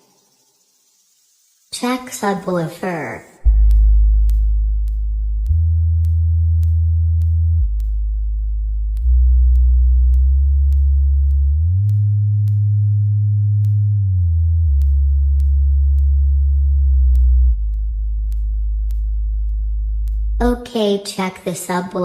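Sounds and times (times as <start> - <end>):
deep bass sine tone: 3.4 - 20.6.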